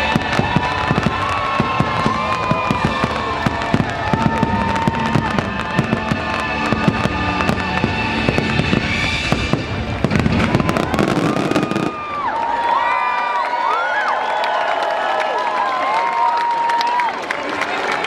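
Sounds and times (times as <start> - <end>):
music: 0.0 - 11.8
fireworks bursts and bangs: 0.0 - 12.5.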